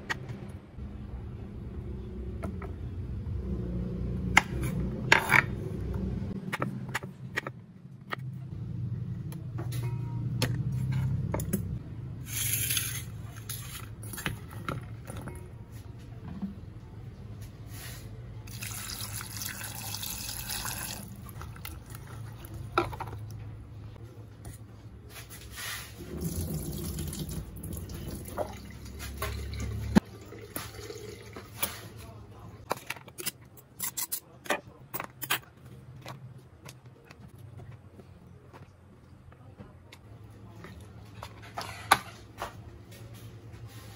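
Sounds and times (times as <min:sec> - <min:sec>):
water running: 0:18.5 - 0:22.6, 0:26.0 - 0:31.6.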